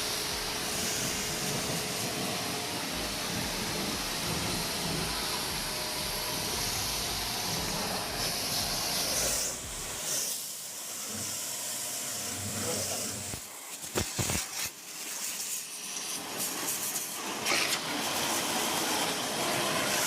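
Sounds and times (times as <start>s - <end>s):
hiss of spray or gas: 0.0s - 20.0s.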